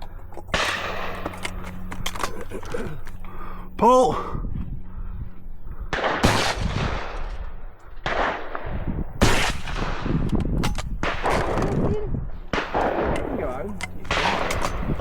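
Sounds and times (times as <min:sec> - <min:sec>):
shotgun shots: 0:05.9 - 0:10.3, 0:12.5 - 0:15.0.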